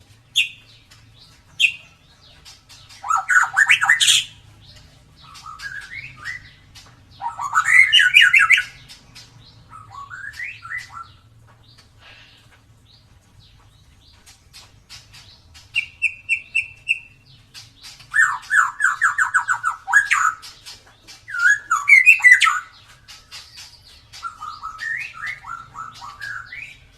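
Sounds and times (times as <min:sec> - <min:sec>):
bird trill: 0:00.0 - 0:26.9
bird singing whistled phrases: 0:03.0 - 0:04.3, 0:05.3 - 0:06.6, 0:07.2 - 0:08.8, 0:09.7 - 0:11.1, 0:15.8 - 0:17.2, 0:21.3 - 0:22.8, 0:24.2 - 0:26.8.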